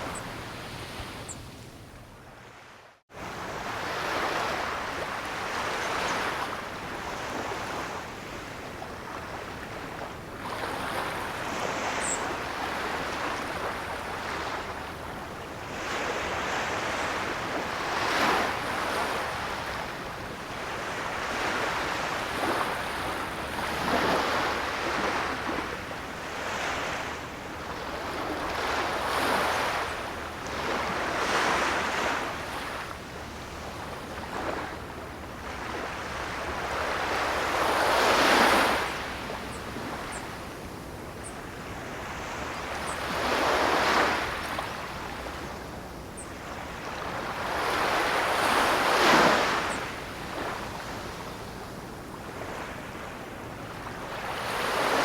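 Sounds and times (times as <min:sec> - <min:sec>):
ocean waves breaking: 0:20.6 - 0:40.6, 0:41.6 - 0:45.8, 0:46.5 - 0:51.6, 0:52.2 - 0:55.0.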